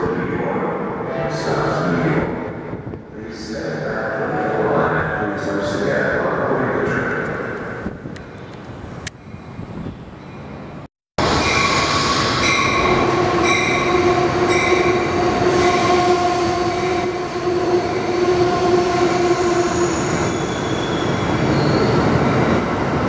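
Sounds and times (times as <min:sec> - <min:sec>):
train rumbling along track: 0:00.3 - 0:23.0
high wheel squeal: 0:17.8 - 0:22.4.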